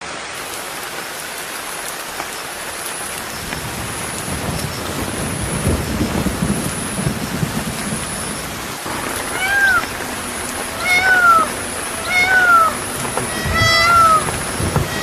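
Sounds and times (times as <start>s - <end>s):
steady hiss like rain: 0.0s - 15.0s
low rumbles: 3.6s - 15.0s.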